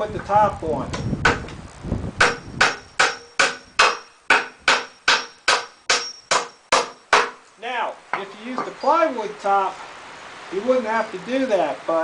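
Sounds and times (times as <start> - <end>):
hammer driving nails into wood: 2.2 - 7.4.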